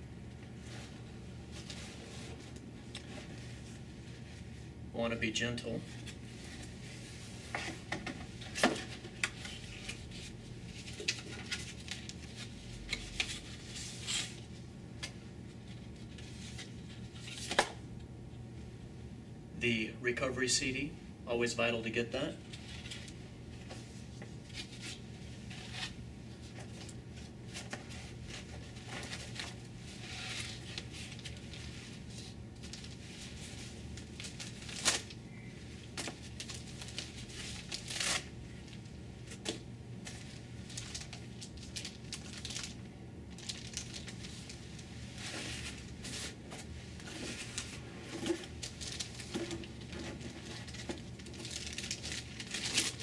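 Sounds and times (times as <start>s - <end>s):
steady low hum: 0.0s - 53.0s
plastic and paper crinkling: 6.0s - 14.4s, 22.5s - 53.0s.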